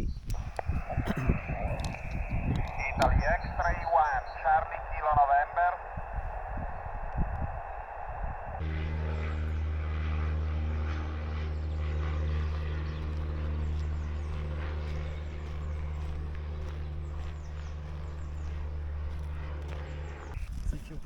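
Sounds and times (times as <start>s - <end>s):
radio receiver hiss: 0.3s - 8.6s
engine drone: 0.3s - 20.5s.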